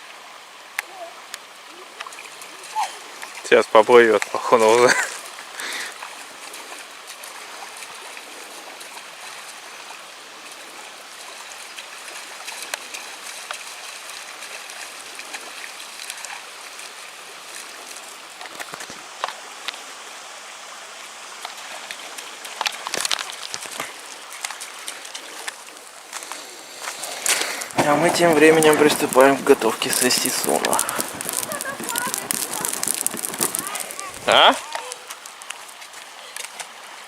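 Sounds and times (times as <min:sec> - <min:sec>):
river water running over stones: 0:00.0 - 0:37.0.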